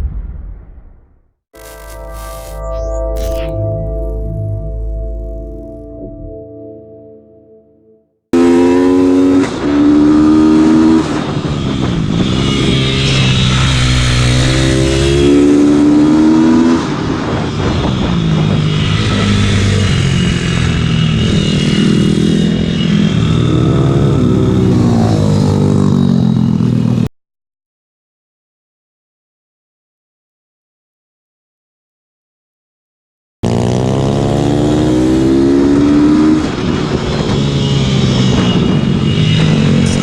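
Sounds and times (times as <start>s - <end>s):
second pitbike engine: 33.4s - 40.0s.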